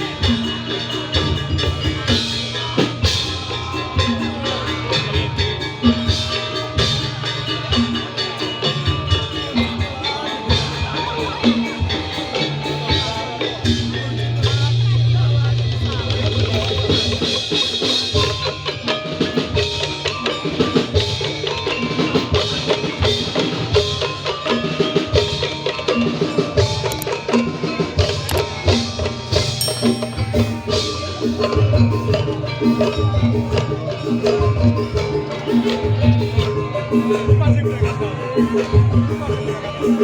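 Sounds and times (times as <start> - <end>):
struck tuned percussion melody: 0.0 - 40.0
low drum beats: 27.8 - 39.8.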